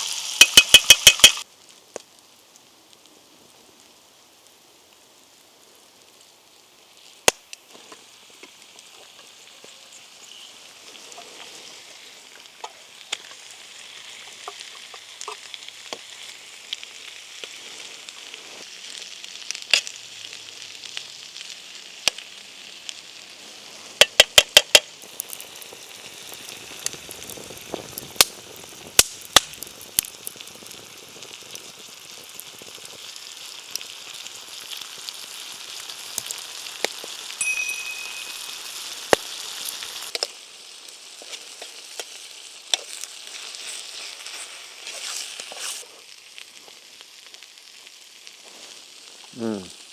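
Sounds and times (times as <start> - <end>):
food sizzling over fire: 0.0 - 49.9
sharp clicks: 0.4 - 1.4.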